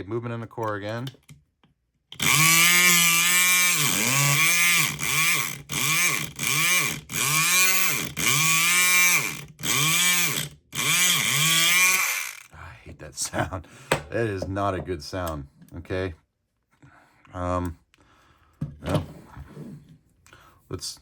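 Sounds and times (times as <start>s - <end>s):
electric lock pick gun buzzing: 2.1s - 12.5s.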